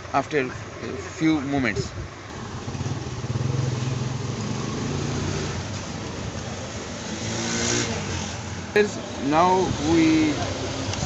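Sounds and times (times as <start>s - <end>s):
engine running with hiss: 2.3s - 11.0s.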